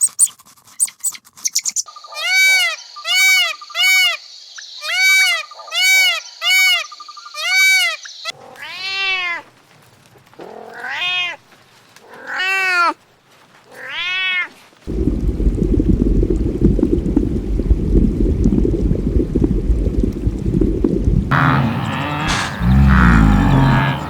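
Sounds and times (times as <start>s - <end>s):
cat meowing: 8.5s - 9.5s, 10.4s - 11.4s, 12.1s - 13.0s, 13.7s - 14.6s
low rumble: 14.9s - 24.0s.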